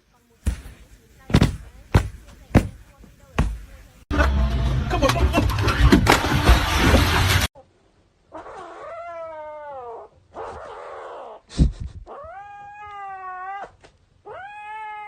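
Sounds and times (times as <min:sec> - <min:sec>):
cat yowling: 0:08.3 - 0:11.4, 0:12.1 - 0:15.0.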